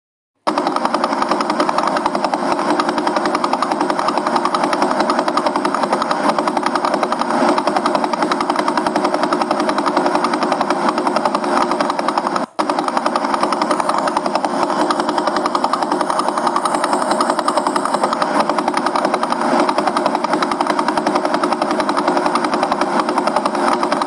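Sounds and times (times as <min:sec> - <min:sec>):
rapid hissing pulses: 0:03.0 - 0:21.6.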